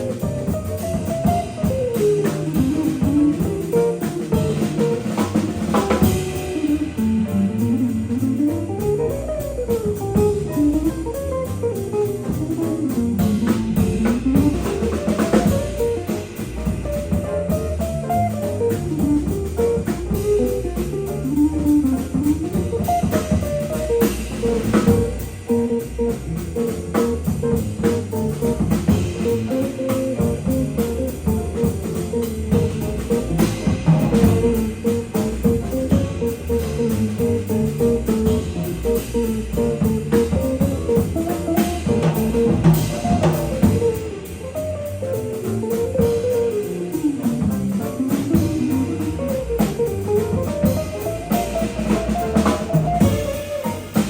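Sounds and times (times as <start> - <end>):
jazz combo playing: 0.0 - 54.0
prominent jazz guitar: 0.0 - 54.0.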